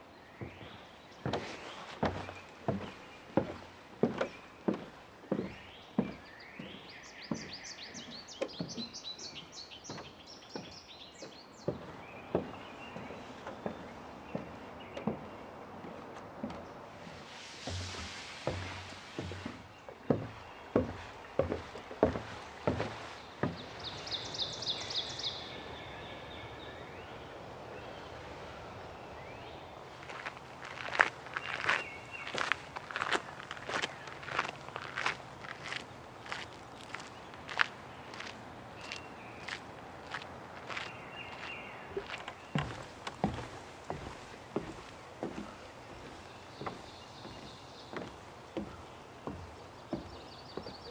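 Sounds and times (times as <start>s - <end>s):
songbird chirping: 0.0s - 50.9s
footsteps: 0.4s - 10.7s, 11.6s - 24.1s, 29.9s - 50.9s.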